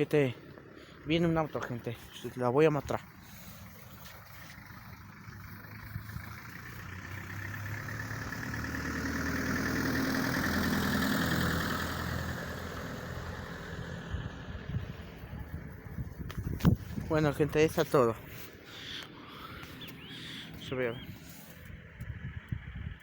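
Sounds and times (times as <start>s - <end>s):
car driving past: 3.0s - 15.9s.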